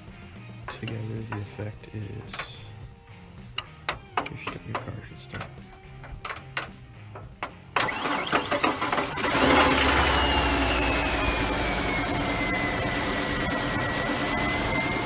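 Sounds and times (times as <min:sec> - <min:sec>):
engine idling: 0:06.0 - 0:15.0
starter motor cranking: 0:07.2 - 0:15.0
falling whine: 0:07.9 - 0:15.0.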